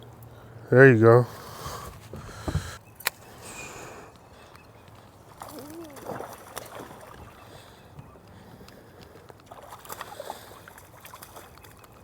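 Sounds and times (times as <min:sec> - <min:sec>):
wind: 0:00.0 - 0:12.0
knocks and clicks of gear: 0:01.8 - 0:03.2.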